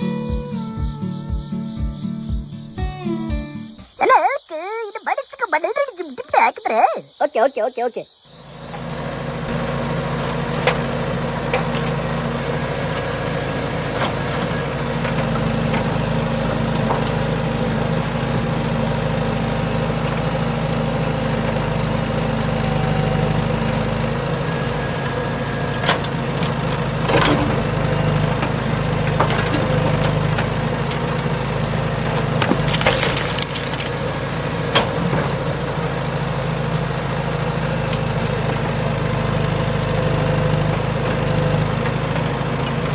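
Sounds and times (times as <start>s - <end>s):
small motor running: 8.4s - 34.5s.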